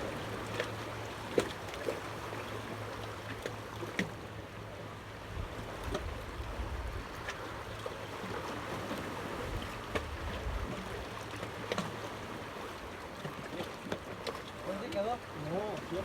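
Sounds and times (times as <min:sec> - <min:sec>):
wind rumbling on microphone: 0:09.5 - 0:10.8.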